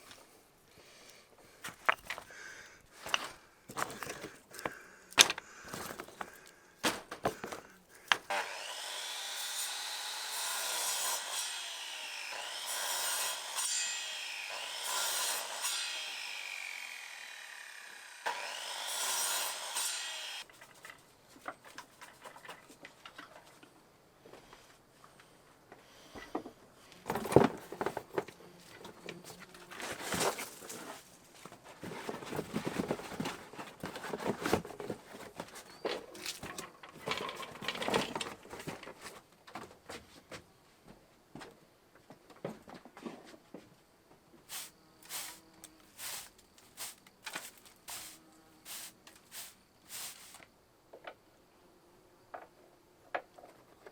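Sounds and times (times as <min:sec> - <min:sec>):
wooden pieces clattering: 0:01.6 - 0:08.3, 0:31.8 - 0:39.2
power saw cutting wood: 0:07.3 - 0:20.5, 0:44.6 - 0:45.4.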